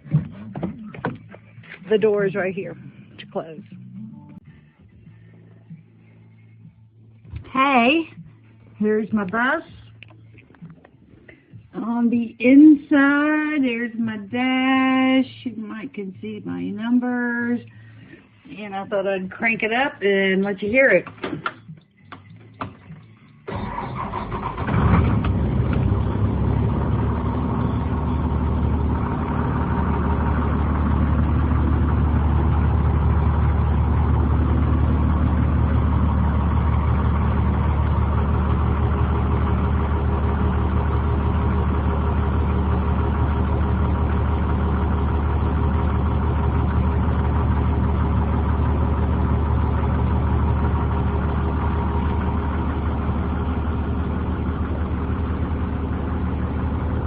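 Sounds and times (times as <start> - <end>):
diesel bus engine idling: 23.0 - 57.0.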